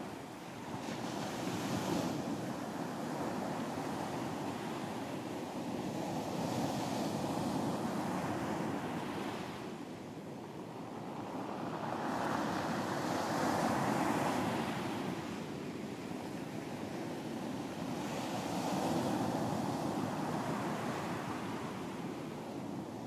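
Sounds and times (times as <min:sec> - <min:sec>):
ocean surf breaking on a beach: 0:00.0 - 0:23.0.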